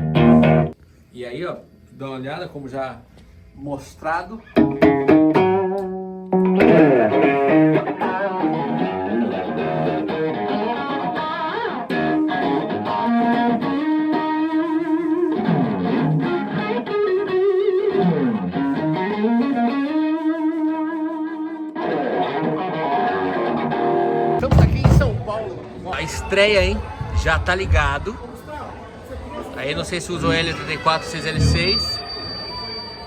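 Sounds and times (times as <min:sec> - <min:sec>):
electric guitar lead with bent notes: 0:00.0 - 0:00.8, 0:04.6 - 0:24.5, 0:30.3 - 0:32.2.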